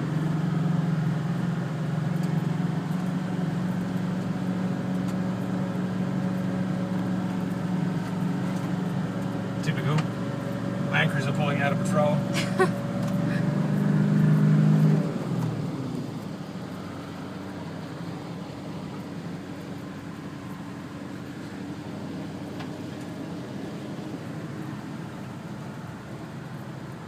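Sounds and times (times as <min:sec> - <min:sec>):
car engine running under load: 0:00.0 - 0:27.0.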